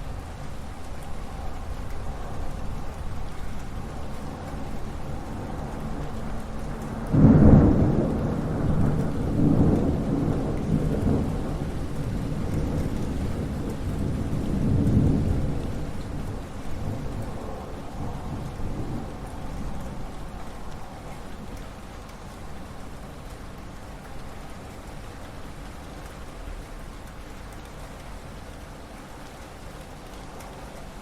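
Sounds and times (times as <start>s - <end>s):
thunder rumbling: 0.0s - 21.6s
steady rain: 0.0s - 31.0s.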